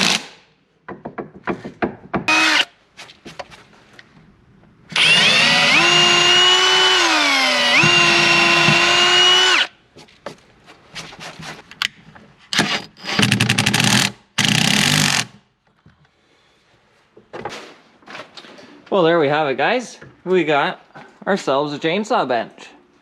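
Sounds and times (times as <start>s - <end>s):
power drill driving screws: 2.3s - 2.7s, 4.9s - 9.7s, 12.6s - 15.3s.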